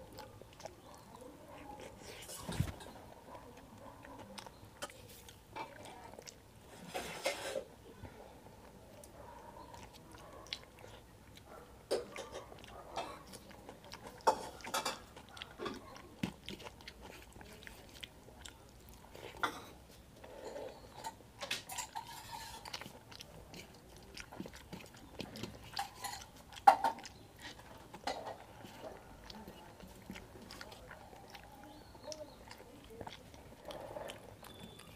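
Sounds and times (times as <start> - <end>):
wet chewing and mouth smacks: 0.0 - 34.9.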